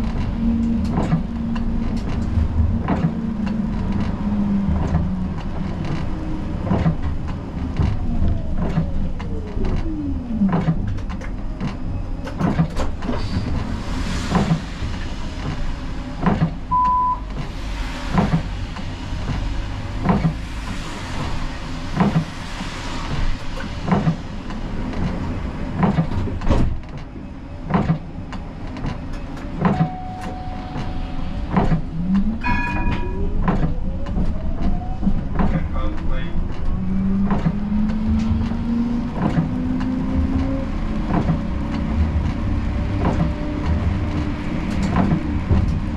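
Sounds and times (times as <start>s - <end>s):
tram electric drive whining: 0.0s - 45.9s
short electronic beeps: 16.7s - 17.3s.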